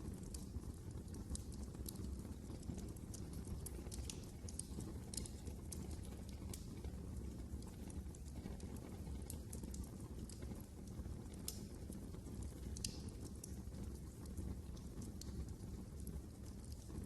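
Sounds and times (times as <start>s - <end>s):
fire rumbling: 0.0s - 17.0s
fire snaps and pops: 0.0s - 17.0s.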